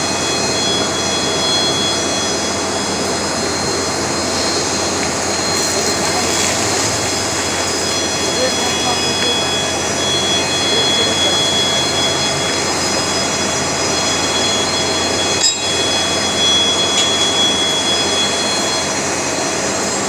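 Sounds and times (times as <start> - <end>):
machinery with high-pitched whine: 0.0 - 20.0.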